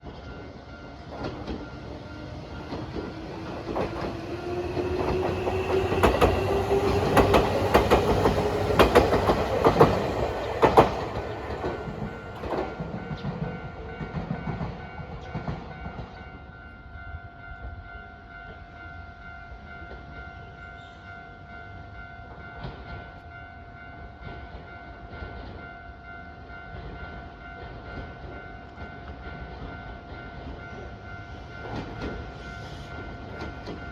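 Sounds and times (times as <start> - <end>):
level crossing warning bell: 0.1 - 33.9
train motor whine: 1.2 - 12.8
wheels clattering over rail joints: 2.6 - 16.1.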